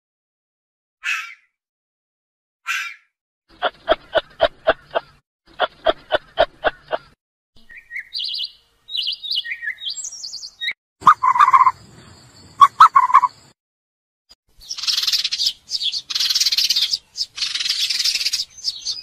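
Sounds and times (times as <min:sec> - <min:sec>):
short evenly spaced animal calls: 0:01.0 - 0:01.4, 0:02.7 - 0:11.8, 0:12.6 - 0:13.6, 0:14.6 - 0:19.0
high bird chirps: 0:02.7 - 0:13.6, 0:14.6 - 0:19.0
lower animal call: 0:11.0 - 0:11.8, 0:12.6 - 0:13.4.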